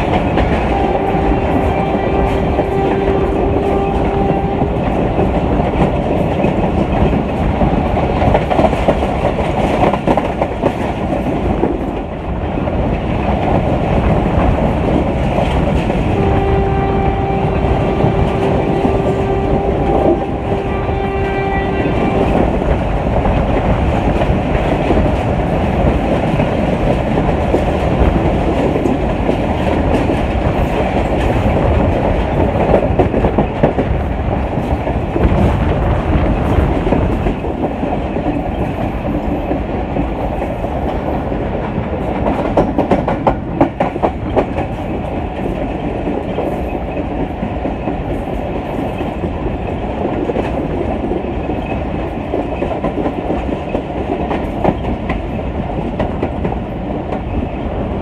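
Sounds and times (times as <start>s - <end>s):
train rumble: 0.0s - 58.0s
train horn blast: 0.4s - 5.3s, 15.9s - 22.6s.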